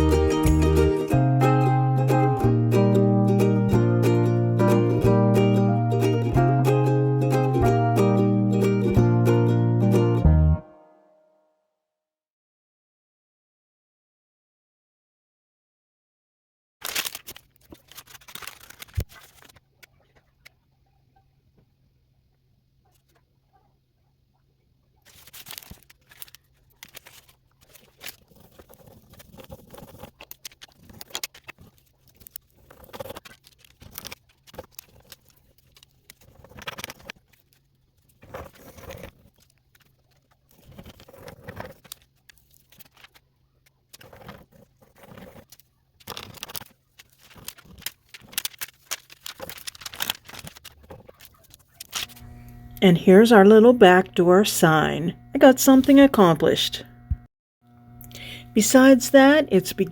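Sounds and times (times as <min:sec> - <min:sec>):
scratching and rustling: 0:16.8 - 0:20.6, 0:25.0 - 0:52.7
faint low hum: 0:51.0 - 0:59.9.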